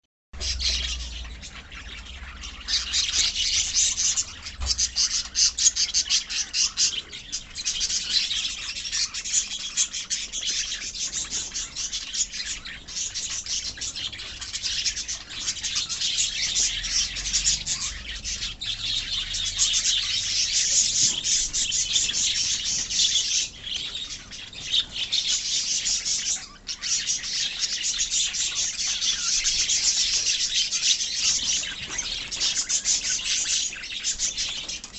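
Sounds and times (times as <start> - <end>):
lovebirds chirping: 0.4 - 34.9.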